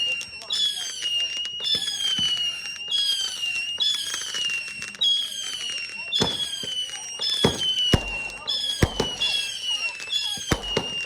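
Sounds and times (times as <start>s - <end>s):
whistling fireworks: 0.0s - 11.0s
crackling pops: 2.2s - 11.0s
heavy firework bang: 7.4s - 9.6s, 10.5s - 11.0s.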